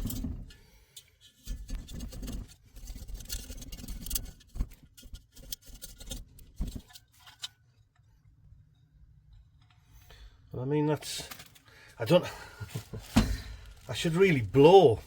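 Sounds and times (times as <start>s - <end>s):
metal strip scraping between fins: 1.0s - 7.6s.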